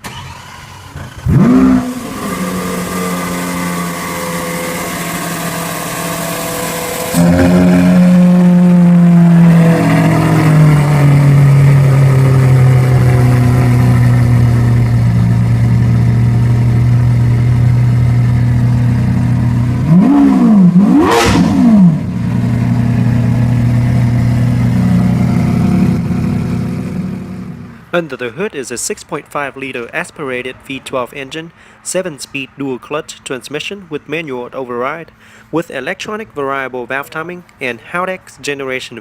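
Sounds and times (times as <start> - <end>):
engine revs blipped: 0.0 - 28.0
car engine idling: 0.0 - 28.5.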